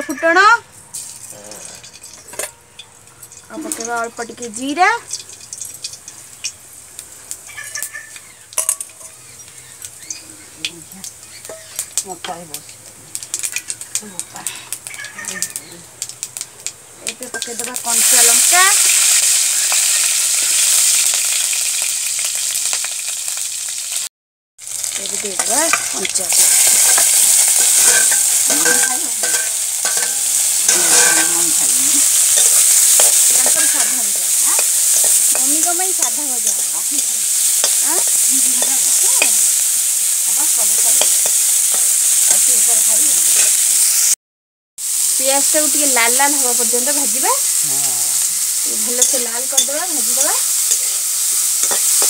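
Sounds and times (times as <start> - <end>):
onions sizzling in hot oil: 0.0 - 44.2, 44.8 - 52.0
metal spatula stirring: 1.0 - 6.6, 11.3 - 12.4, 25.2 - 39.6, 40.2 - 42.8, 48.8 - 52.0.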